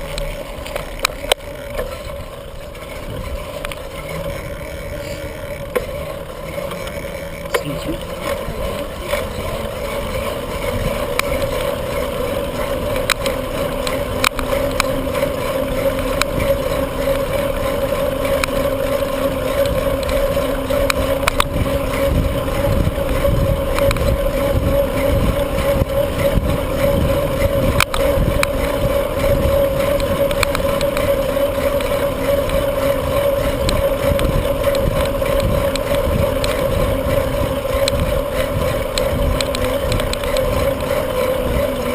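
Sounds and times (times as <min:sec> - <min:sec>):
steady hum: 0:00.0 - 0:41.9
wind buffeting microphone: 0:02.1 - 0:41.9.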